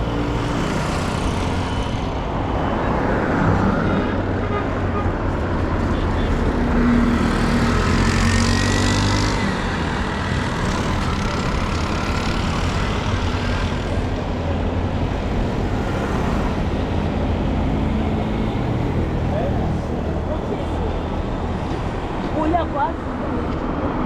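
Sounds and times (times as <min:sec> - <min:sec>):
street traffic: 0:00.0 - 0:24.0.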